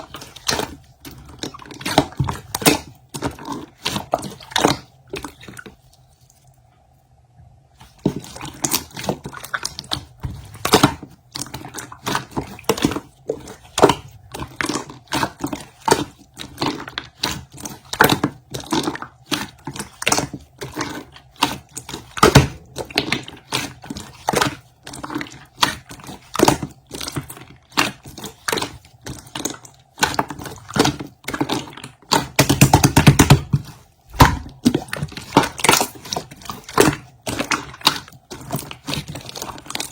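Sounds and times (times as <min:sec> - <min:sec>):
crunching and clicking: 0:08.6 - 0:39.9.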